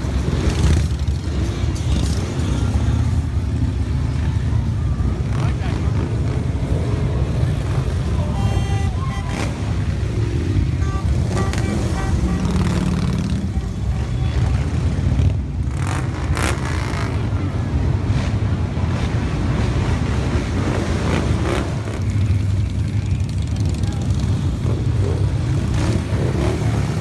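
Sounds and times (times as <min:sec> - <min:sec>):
motorcycles riding past: 0:00.0 - 0:27.0.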